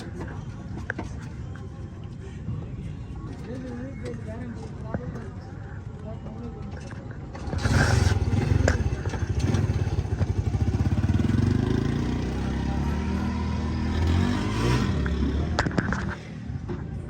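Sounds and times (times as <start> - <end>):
car engine revving: 7.4 - 16.2.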